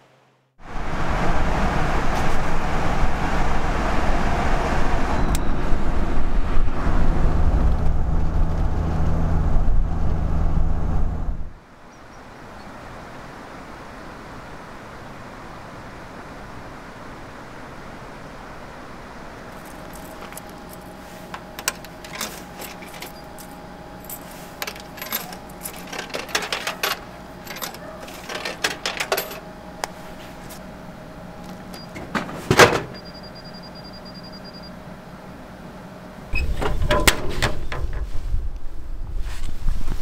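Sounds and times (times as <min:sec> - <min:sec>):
light metallic clinks: 0:19.6 - 0:29.4.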